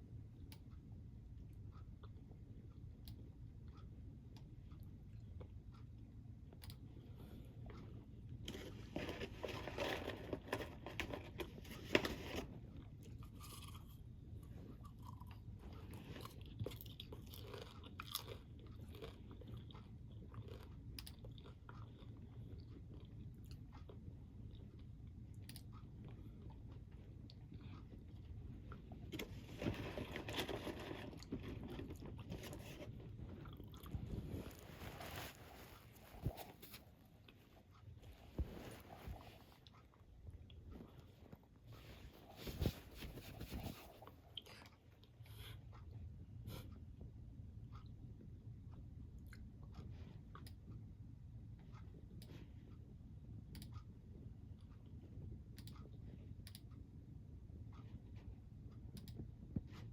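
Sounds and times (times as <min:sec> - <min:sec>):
person chewing crunchy snack: 0:12.7 - 0:24.9.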